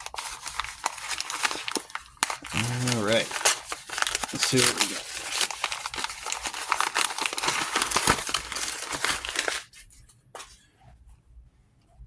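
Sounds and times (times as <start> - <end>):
packaging crinkling and rustling: 0.0 - 10.5.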